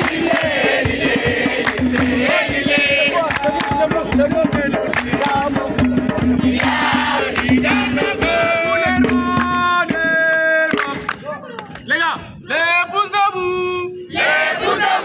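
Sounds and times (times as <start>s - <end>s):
fast percussive beat: 0.0s - 11.2s
crowd singing and chanting: 0.0s - 11.4s, 14.1s - 15.0s.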